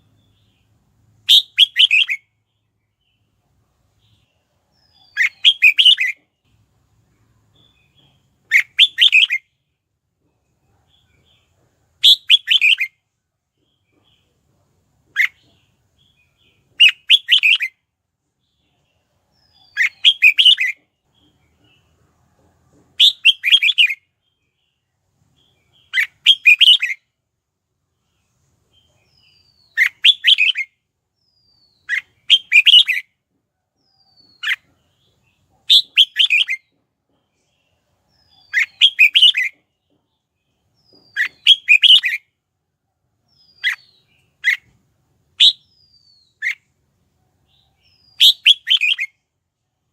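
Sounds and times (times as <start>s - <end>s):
bulbul singing: 0.0s - 3.3s, 4.0s - 6.5s, 19.4s - 21.8s, 25.4s - 27.0s, 28.7s - 33.1s, 33.8s - 36.8s, 37.4s - 42.4s, 43.3s - 46.7s, 47.5s - 49.3s.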